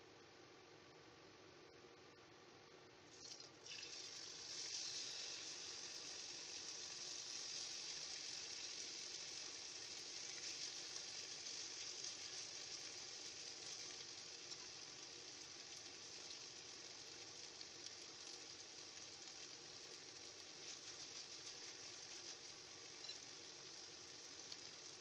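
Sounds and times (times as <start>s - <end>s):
pork sizzling in a wok: 3.1s - 25.0s.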